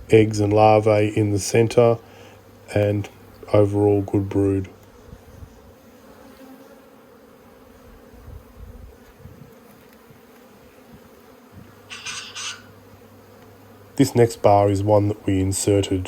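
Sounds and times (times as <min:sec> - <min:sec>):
honeybees buzzing: 0:00.0 - 0:16.0
scratchy rustling: 0:11.9 - 0:12.8.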